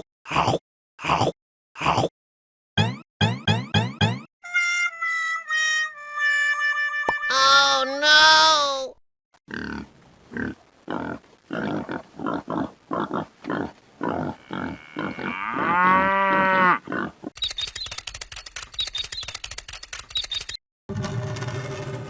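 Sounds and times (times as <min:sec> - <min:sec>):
cow mooing: 0:14.0 - 0:17.1
fast mechanical clatter: 0:17.4 - 0:22.0.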